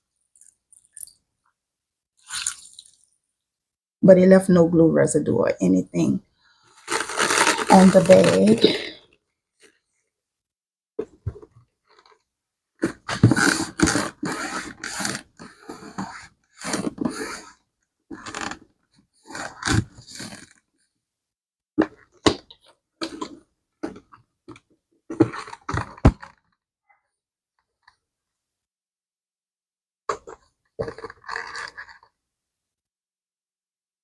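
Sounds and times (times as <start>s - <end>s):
leather bag rustling and scraping: 6.7s - 9.0s, 30.8s - 32.1s.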